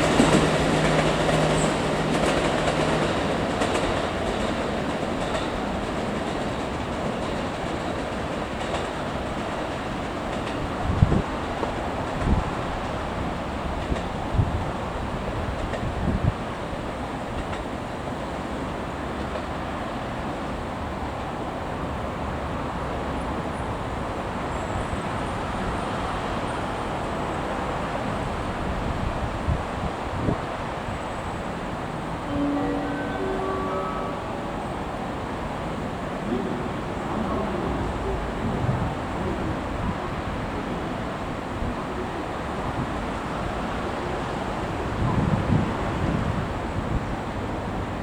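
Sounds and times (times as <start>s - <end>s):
wind buffeting microphone: 0.0s - 17.6s, 25.4s - 32.2s, 34.2s - 48.0s
electric train passing: 0.0s - 48.0s.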